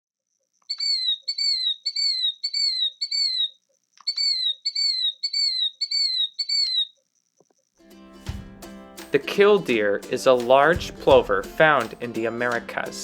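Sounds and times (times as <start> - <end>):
shrill bird whistles: 0.7 - 7.0.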